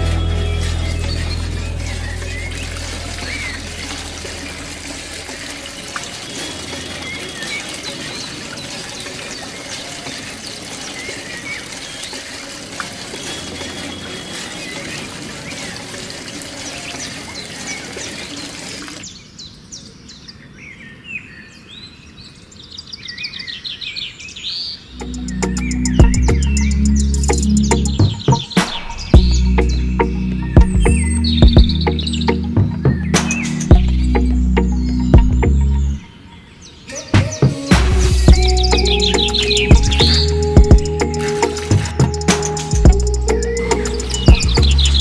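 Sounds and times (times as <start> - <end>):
music: 0.0 - 7.2, 25.0 - 36.1, 37.0 - 45.0
birds chirping: 0.0 - 45.0
water pouring into clay pot: 0.2 - 19.1.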